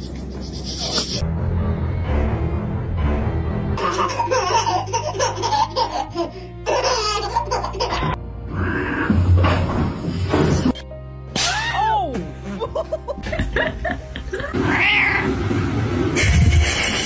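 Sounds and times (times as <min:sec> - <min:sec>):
background music: 0:01.2 - 0:17.0
people laughing: 0:12.4 - 0:14.6.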